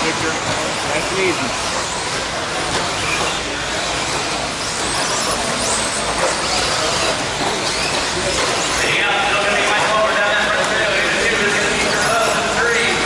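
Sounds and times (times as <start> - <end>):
high electric motor whines: 0.0 - 9.0.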